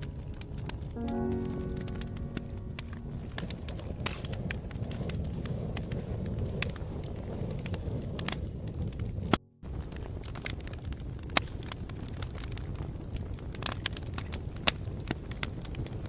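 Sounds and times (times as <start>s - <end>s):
wood fire crackling: 0.0s - 16.0s
sharp pops and snaps: 9.2s - 12.7s.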